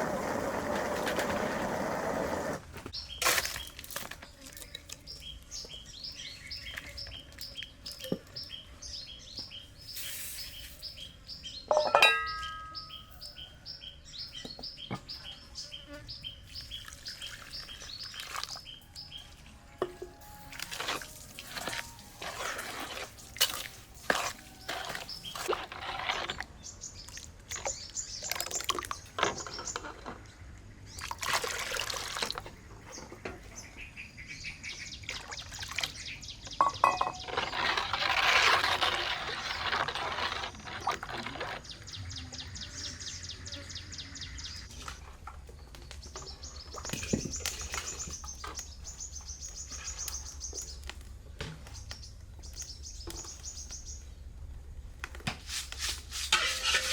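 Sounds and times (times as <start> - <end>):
birds chirping rapidly: 4.6 - 19.2, 45.5 - 50.9, 51.6 - 54.3
kitchen knocks and clatter: 11.7 - 12.9, 36.6 - 37.3
water pouring or splashing: 16.6 - 18.7, 20.3 - 26.4, 27.1 - 29.5, 31.0 - 32.6, 35.0 - 36.1.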